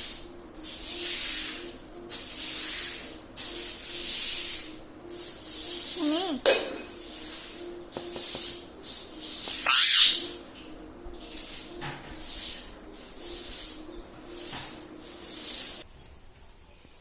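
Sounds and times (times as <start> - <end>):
parrot hissing: 9.1 - 10.4
parrot wavering call: 9.4 - 10.4
parrot squawking: 9.5 - 10.4.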